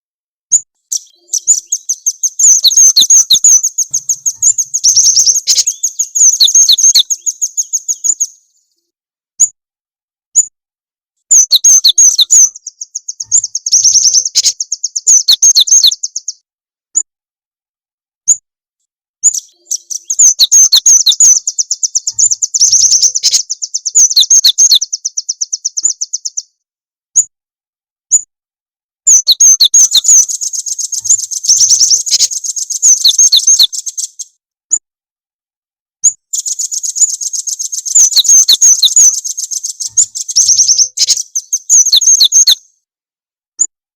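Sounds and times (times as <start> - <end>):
short bird chirps: 0.5 - 9.6, 11.2 - 17.1, 19.2 - 27.3, 29.1 - 34.8, 36.0 - 42.8
songbird chattering trills: 0.8 - 8.4, 11.3 - 16.4, 19.2 - 26.5, 29.1 - 34.3, 36.3 - 42.6.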